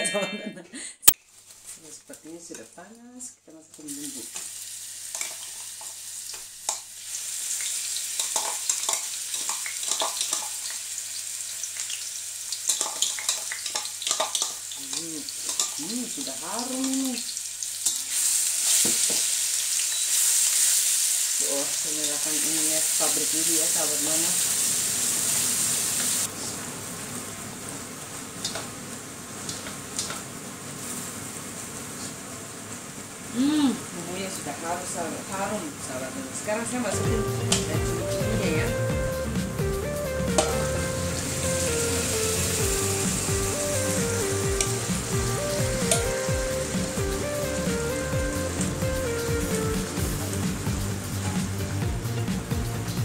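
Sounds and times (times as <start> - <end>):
paste sizzling in hot oil: 3.8 - 33.4, 40.2 - 51.8.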